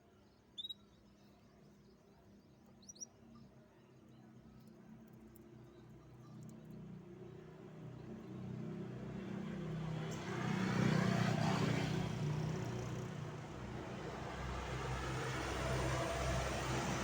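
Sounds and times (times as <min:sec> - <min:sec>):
vehicle passing by: 0:09.4 - 0:17.0.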